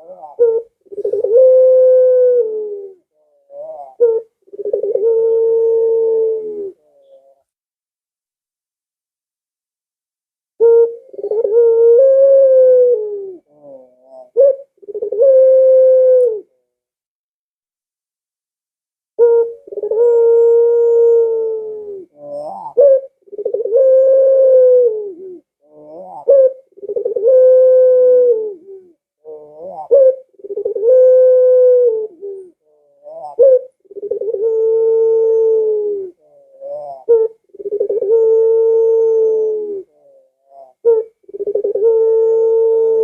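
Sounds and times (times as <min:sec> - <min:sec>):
dove cooing: 0:00.0 - 0:07.5, 0:10.6 - 0:16.7, 0:19.2 - 0:43.0.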